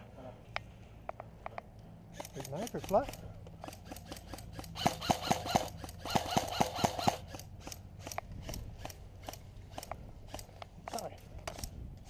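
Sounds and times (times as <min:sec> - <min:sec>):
airsoft guns firing: 0:02.1 - 0:10.6.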